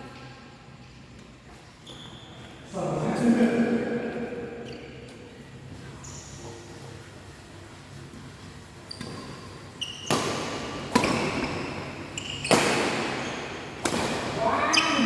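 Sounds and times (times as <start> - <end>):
shoe squeaks on court floor: 1.7 - 2.7, 5.8 - 6.6, 8.8 - 13.6
racket striking shuttlecock: 10.0 - 14.4.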